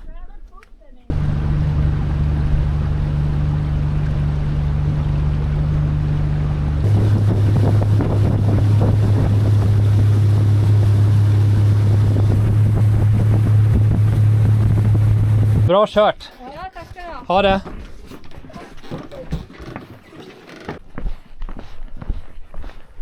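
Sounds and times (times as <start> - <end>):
wind: 0.0 - 23.0
motorboat engine running: 1.1 - 15.7, 18.5 - 20.8
water noise: 1.1 - 16.1.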